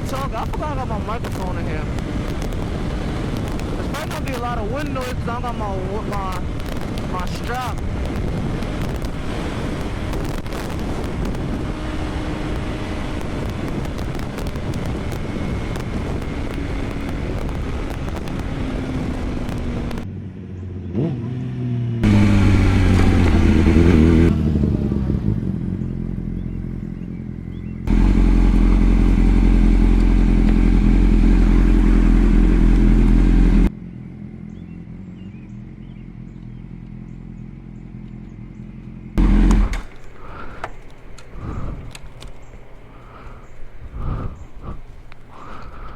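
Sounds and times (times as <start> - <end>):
wind noise: 0.0 - 20.2, 39.2 - 45.9
motorcycle engine: 0.0 - 45.9.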